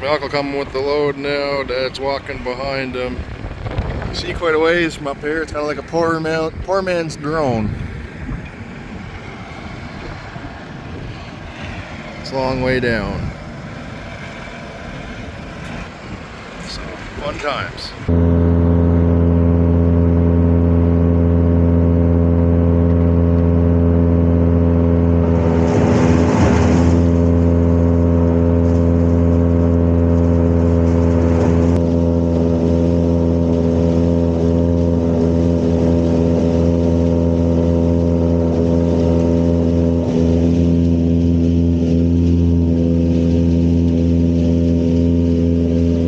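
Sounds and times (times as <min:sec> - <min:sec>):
silage blower droning hum: 0:00.0 - 0:46.0
brief rushing noise: 0:24.8 - 0:29.4.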